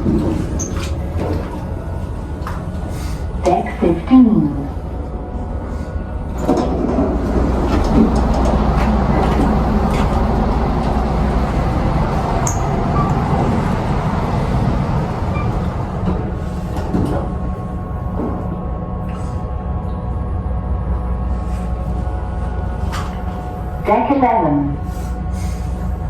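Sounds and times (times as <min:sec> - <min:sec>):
elevator cab rumbling: 0:00.0 - 0:26.0.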